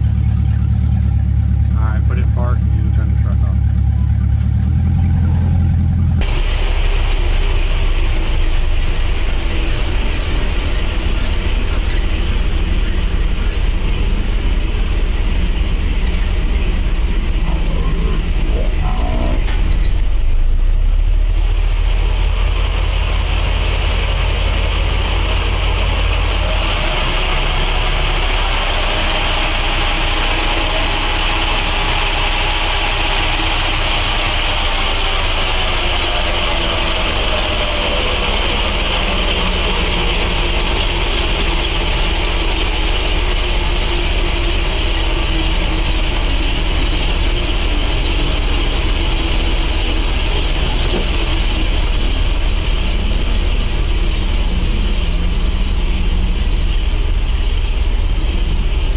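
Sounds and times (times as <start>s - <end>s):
engine hiss: 0.0s - 6.7s, 22.0s - 58.9s
truck engine rumbling: 0.0s - 7.2s, 7.8s - 58.9s.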